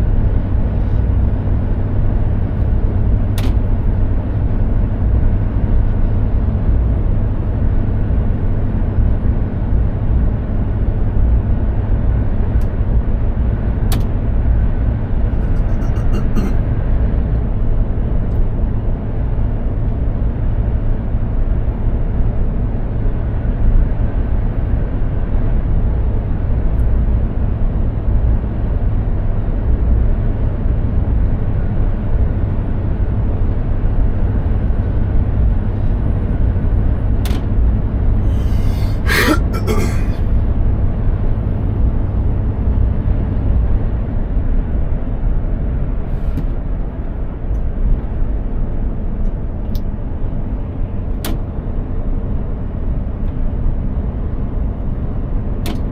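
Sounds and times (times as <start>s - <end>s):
truck diesel engine drone: 0.0s - 18.2s, 37.7s - 41.9s.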